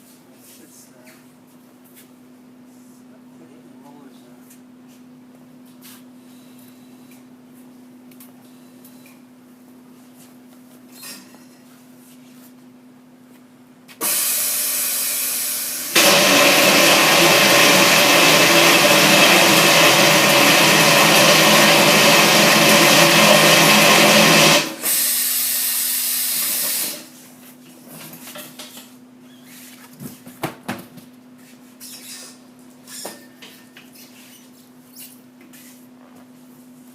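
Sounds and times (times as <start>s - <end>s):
machine whining under load: 14.0s - 25.6s.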